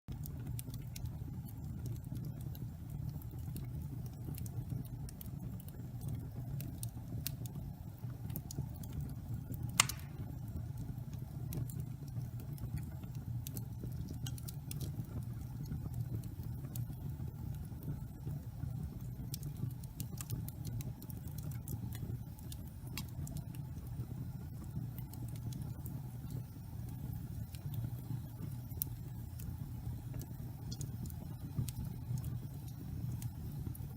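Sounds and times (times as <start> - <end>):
fire crackles: 0.1 - 33.9
fire rumbling: 0.2 - 33.9
loud pop: 9.8 - 10.3.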